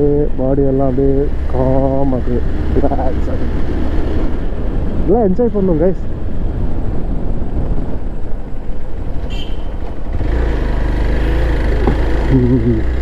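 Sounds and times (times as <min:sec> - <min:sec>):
motorcycle running: 0:00.0 - 0:13.0
wind rushing over microphone: 0:02.2 - 0:10.8.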